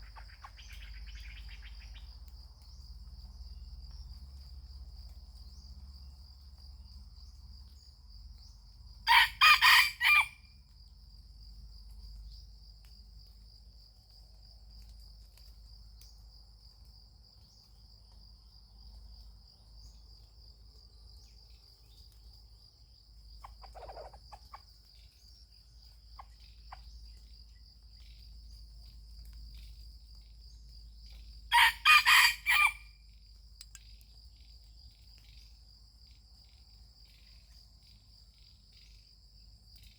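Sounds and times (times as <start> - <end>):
high-pitched insect trill: 0.0 - 39.9
rooster crowing: 9.1 - 10.5, 31.5 - 33.0.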